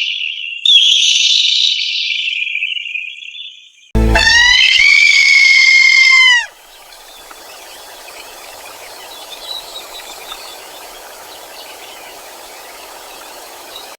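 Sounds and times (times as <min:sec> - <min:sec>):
rooster crowing: 0:04.1 - 0:06.6
steady hiss: 0:06.5 - 0:13.9.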